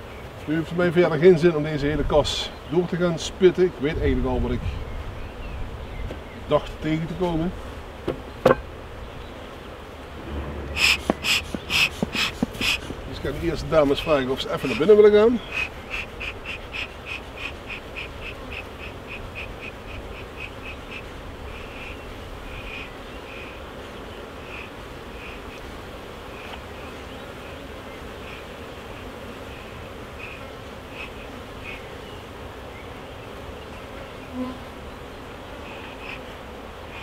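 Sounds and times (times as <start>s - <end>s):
honeybees buzzing: 0.0s - 37.0s
bee smoker puffs: 9.6s - 37.0s.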